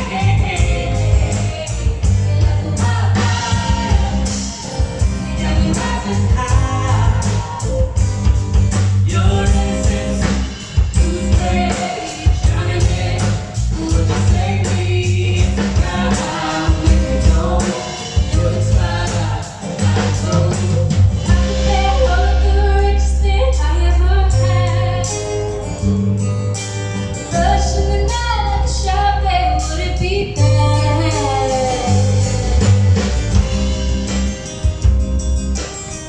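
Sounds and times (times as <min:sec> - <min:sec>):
drum beat: 0:00.0 - 0:21.6
bass: 0:00.0 - 0:36.0
person singing lead vocals: 0:09.0 - 0:25.6, 0:27.4 - 0:32.8.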